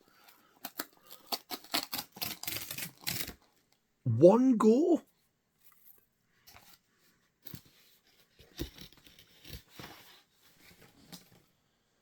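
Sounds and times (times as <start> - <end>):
packaging tearing and rustling: 0.6 - 3.6.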